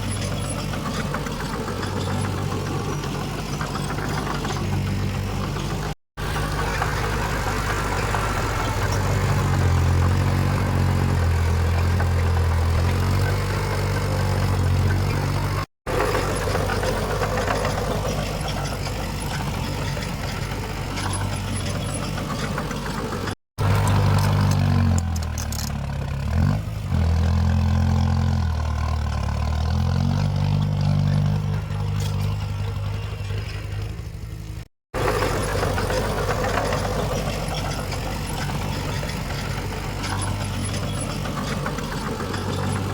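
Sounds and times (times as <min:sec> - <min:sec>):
heavy diesel machinery engine: 0:00.0 - 0:42.9.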